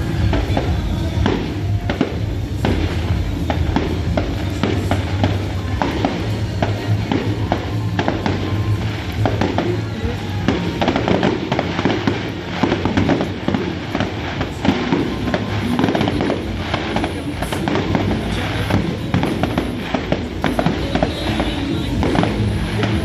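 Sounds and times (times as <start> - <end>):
fireworks bangs and crackles: 0.0 - 23.0
music playing: 0.0 - 23.0.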